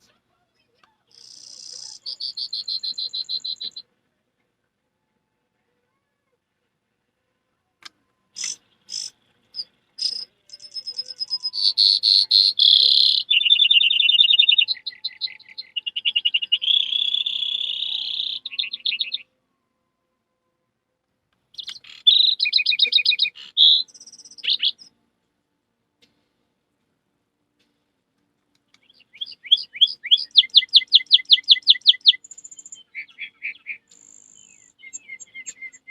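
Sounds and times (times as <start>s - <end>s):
person imitating birdsong: 1.1s - 3.8s, 10.0s - 19.2s, 21.6s - 24.8s, 28.9s - 35.9s.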